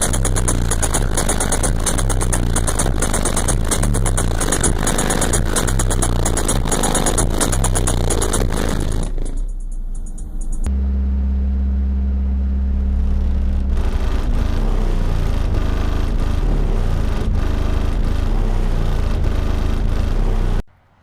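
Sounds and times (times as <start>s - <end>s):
bass-heavy music from subwoofers: 0.0s - 20.6s.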